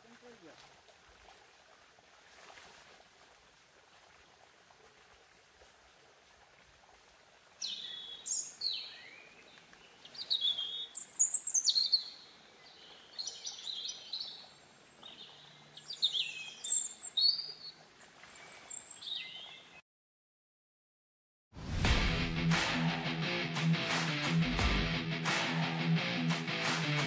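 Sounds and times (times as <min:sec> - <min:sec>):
bird singing whistled phrases: 0:10.2 - 0:12.2.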